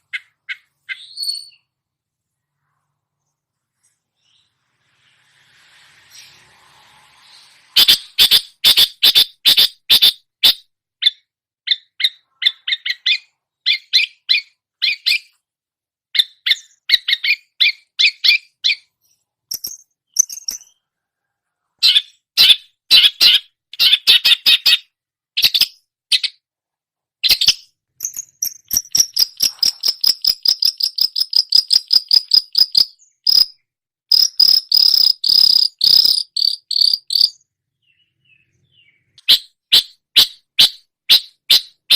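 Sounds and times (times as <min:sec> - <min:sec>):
bird chattering song: 0:00.0 - 0:01.8, 0:07.8 - 0:15.4, 0:16.2 - 0:20.9, 0:21.8 - 0:26.4, 0:27.2 - 0:41.9.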